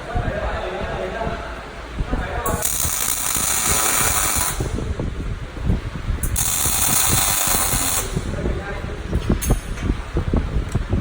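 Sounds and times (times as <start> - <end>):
welding crackle: 2.5 - 4.9, 6.2 - 8.4
hissing welding arc: 2.5 - 5.0, 6.2 - 8.4.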